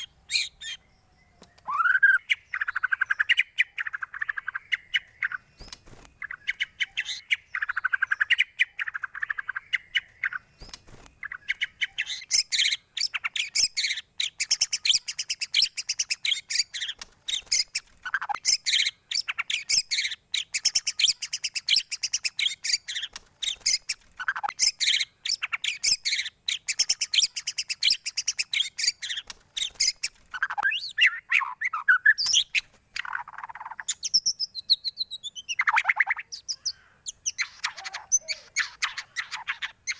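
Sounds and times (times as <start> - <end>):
songbird chirps and trills: 0.0 - 39.9.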